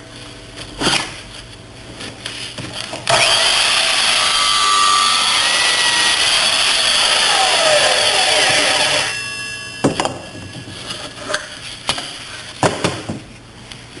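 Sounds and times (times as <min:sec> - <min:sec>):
miter saw winding down: 0:03.1 - 0:09.3
faint metallic ringing: 0:08.9 - 0:11.9.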